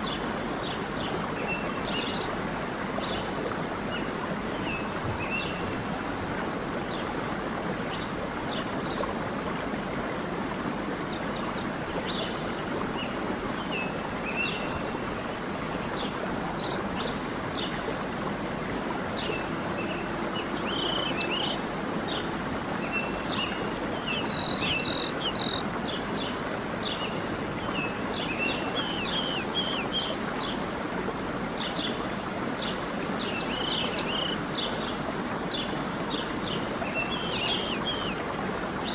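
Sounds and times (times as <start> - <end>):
stream running: 0.0 - 38.9
small birds chirping: 22.9 - 26.0.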